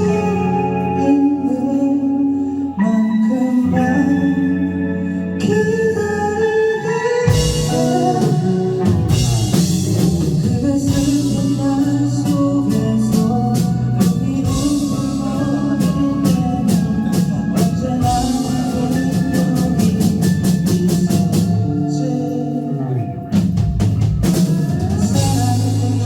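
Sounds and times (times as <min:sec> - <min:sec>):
bass guitar: 0:00.0 - 0:26.0
electric guitars: 0:00.0 - 0:26.0
drum kit: 0:05.4 - 0:26.0.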